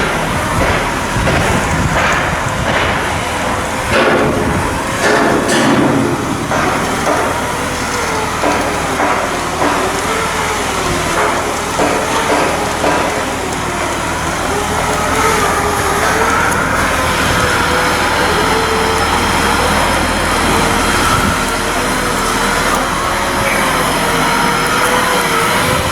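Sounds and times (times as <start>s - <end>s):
knocks on hull: 0.0s - 10.2s
machinery humming: 0.0s - 25.9s.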